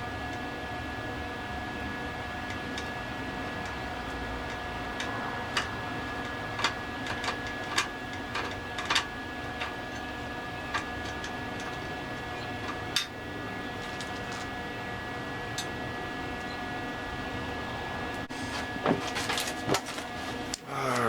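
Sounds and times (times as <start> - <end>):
steady hum: 0.0 - 21.0
sharp clicks and light knocks: 3.6 - 10.1.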